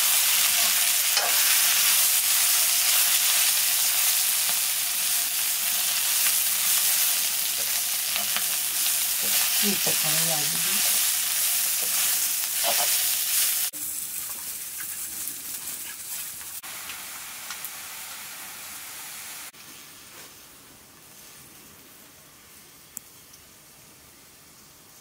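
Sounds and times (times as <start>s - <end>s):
food sizzling in iron pan: 0.0s - 20.0s.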